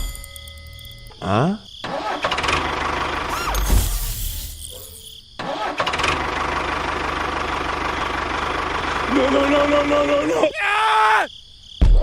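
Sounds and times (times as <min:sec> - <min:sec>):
small engine running: 0:05.8 - 0:10.1.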